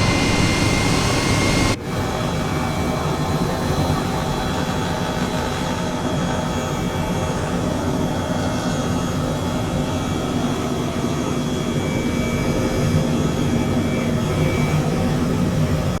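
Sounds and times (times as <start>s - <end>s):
loud mechanical drone: 0.0s - 3.4s.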